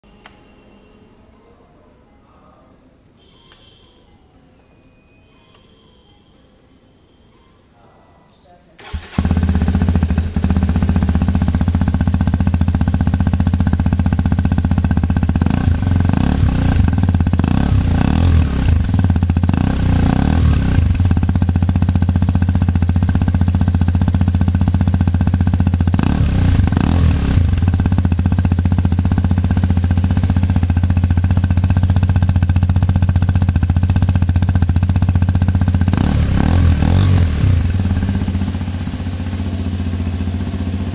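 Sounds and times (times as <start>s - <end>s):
motorcycle engine idling: 8.8s - 40.9s
motorcycle throttle blips: 8.8s - 40.9s.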